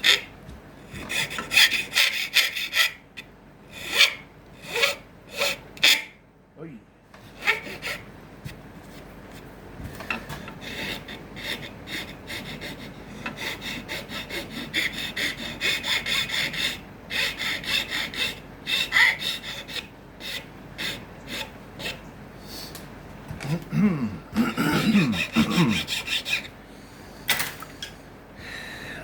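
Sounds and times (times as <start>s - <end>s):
file rasping on wood: 0.0s - 0.3s, 1.0s - 3.0s, 3.8s - 6.1s, 7.3s - 8.1s, 10.5s - 22.0s, 24.6s - 26.5s.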